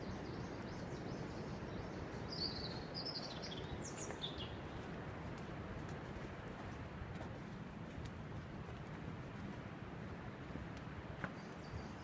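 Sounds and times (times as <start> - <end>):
songbird chirping: 0.0 - 4.8.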